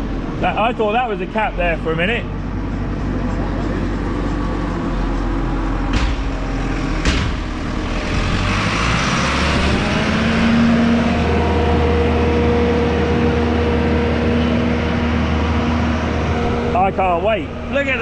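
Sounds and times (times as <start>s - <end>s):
diesel engine running: 0.0s - 18.0s
sharp knocks: 5.8s - 8.7s.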